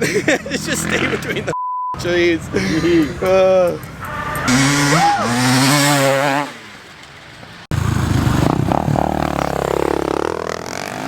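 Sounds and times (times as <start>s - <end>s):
dirt bike engine running: 7.7s - 11.0s.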